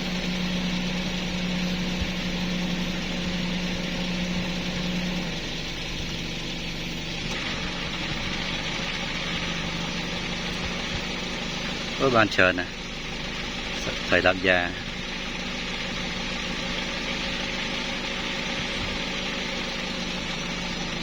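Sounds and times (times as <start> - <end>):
motor humming: 0.0 - 21.0.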